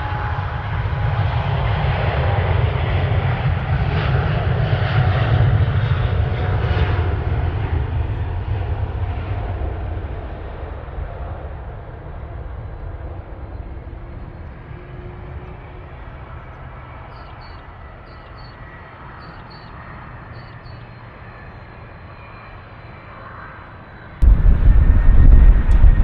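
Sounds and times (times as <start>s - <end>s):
faint high whine: 24.2s - 26.0s
jet engines rumbling: 24.2s - 26.0s.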